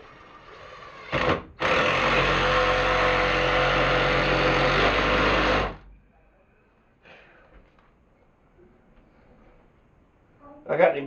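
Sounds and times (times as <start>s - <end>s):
electric drill running: 0.0s - 5.8s.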